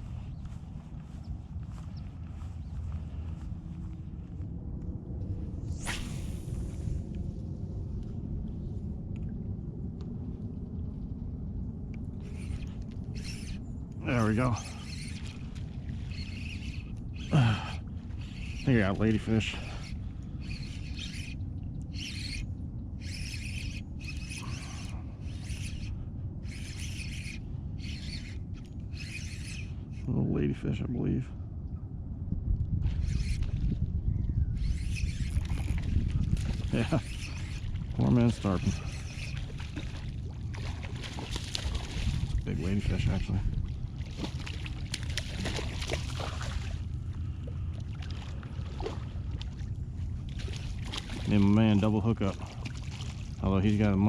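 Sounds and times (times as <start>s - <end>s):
steady low rumble: 0.0s - 54.0s
fishing reel being cranked: 12.2s - 15.4s, 16.1s - 17.6s, 18.2s - 22.4s, 23.0s - 30.1s, 33.0s - 33.5s, 34.6s - 39.8s
light water splashes: 35.2s - 54.0s.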